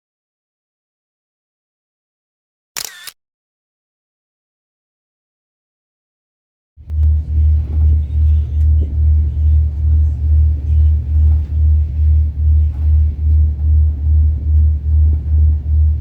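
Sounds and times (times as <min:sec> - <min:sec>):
ferry engine throbbing: 0:06.8 - 0:16.0.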